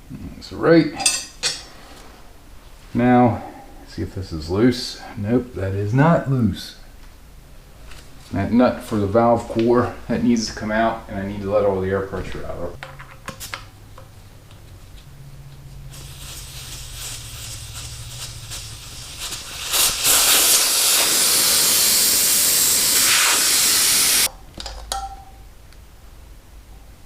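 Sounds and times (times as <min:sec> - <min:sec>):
air hissing out of tire valve: 0:15.9 - 0:24.3.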